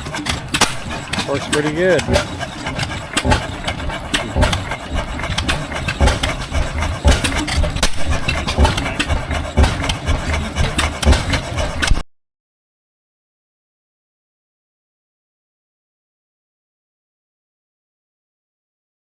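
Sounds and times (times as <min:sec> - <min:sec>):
antique engine firing unevenly: 0:00.0 - 0:12.0.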